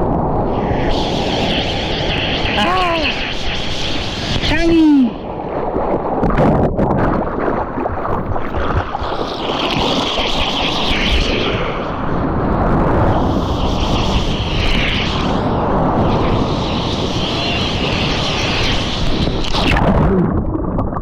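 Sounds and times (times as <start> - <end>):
ocean surf: 0.0 - 6.2, 11.4 - 19.7
wind buffeting microphone: 0.0 - 21.0.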